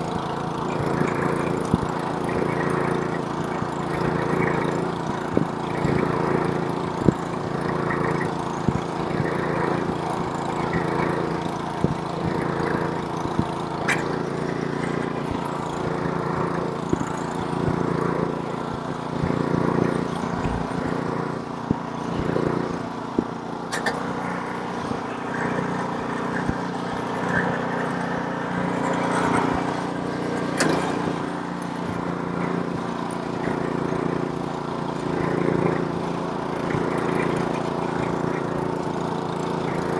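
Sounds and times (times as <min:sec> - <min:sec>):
snowblower engine running: 0:00.0 - 0:39.9
sharp clicks: 0:19.2 - 0:21.0.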